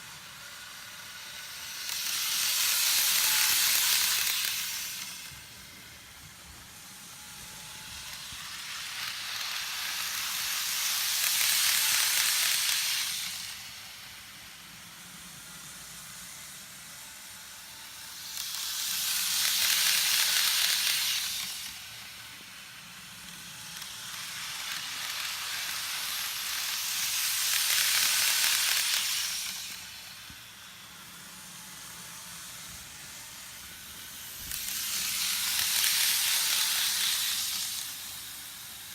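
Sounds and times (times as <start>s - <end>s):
model train running on track: 0.0s - 38.9s.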